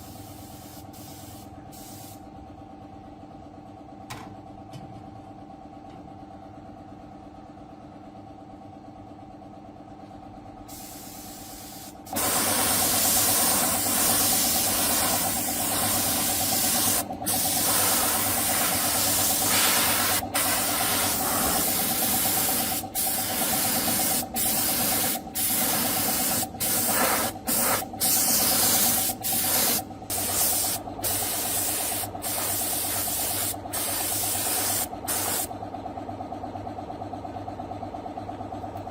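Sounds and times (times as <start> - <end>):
air tool hissing: 0.0 - 2.2, 10.7 - 35.5.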